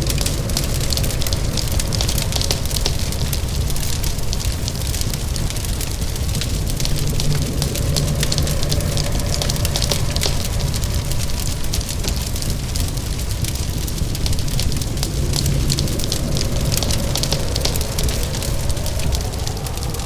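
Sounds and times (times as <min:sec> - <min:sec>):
low rumble: 0:00.0 - 0:20.0
rain hissing: 0:00.0 - 0:20.0
wood fire crackling: 0:00.0 - 0:20.0.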